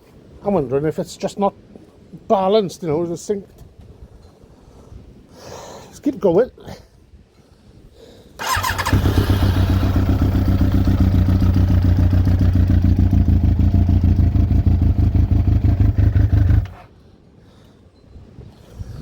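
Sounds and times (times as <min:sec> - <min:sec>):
motorcycle engine running: 0:08.4 - 0:16.8
motorcycle starter whine: 0:08.4 - 0:16.8.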